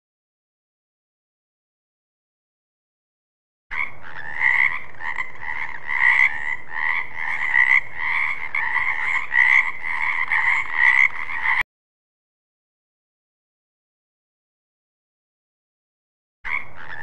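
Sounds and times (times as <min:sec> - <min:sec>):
frogs croaking: 0:03.7 - 0:11.6, 0:16.5 - 0:17.0.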